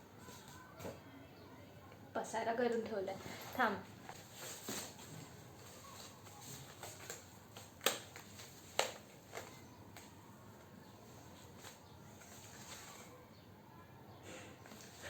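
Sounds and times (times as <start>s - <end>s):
handling noises: 3.1s - 13.2s.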